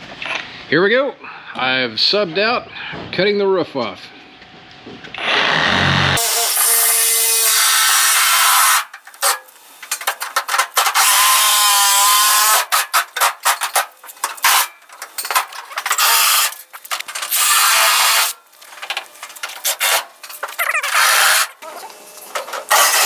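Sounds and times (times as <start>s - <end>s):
reciprocating saw cutting metal: 5.5s - 23.0s.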